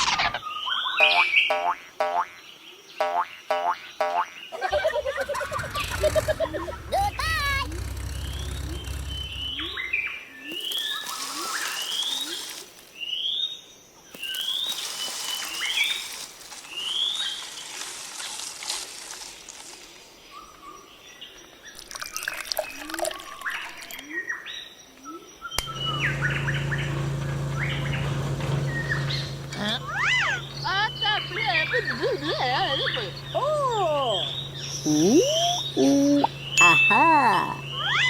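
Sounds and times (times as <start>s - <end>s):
birds chirping: 4.4s - 17.8s, 24.0s - 38.0s
low hum: 4.7s - 12.9s, 25.6s - 38.0s.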